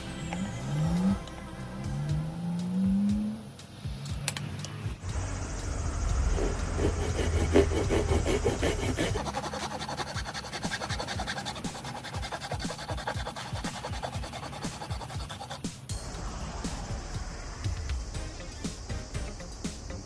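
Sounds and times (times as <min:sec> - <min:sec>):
scraping wood: 0:06.2 - 0:15.7.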